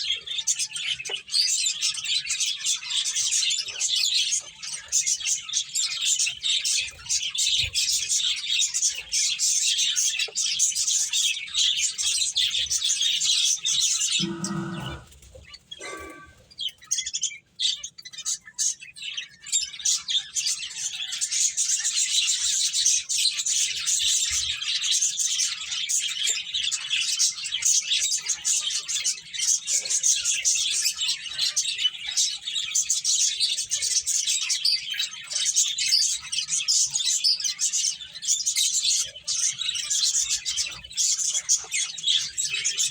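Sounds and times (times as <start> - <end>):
finches twittering: 14.2 - 15.1.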